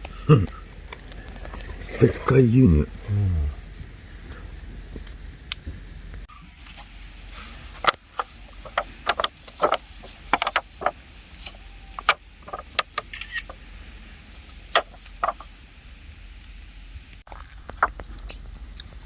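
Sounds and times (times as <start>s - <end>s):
steady low hum: 0.0s - 19.0s
sharp clicks and knocks: 7.8s - 11.0s.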